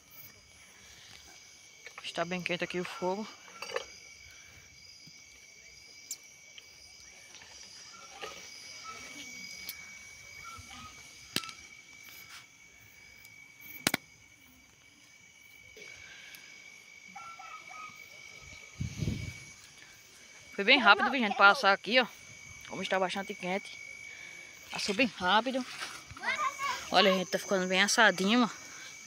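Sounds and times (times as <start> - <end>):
crickets chirring: 0.0 - 29.0
corn popping on embers: 13.1 - 15.1.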